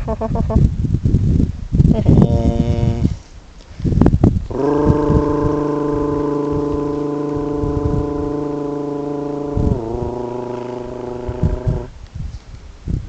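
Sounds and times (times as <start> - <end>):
person's long low voiced call: 1.9 - 3.3, 4.5 - 11.9.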